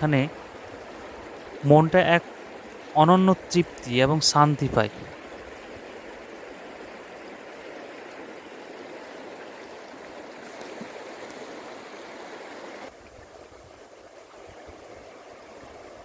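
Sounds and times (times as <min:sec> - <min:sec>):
river water babbling: 0:00.0 - 0:16.0.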